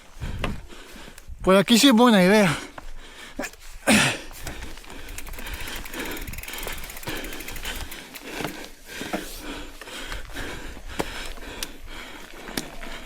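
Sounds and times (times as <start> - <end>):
bike tyre noise on trail: 0.0 - 13.0
bike freehub ticking: 4.4 - 10.3.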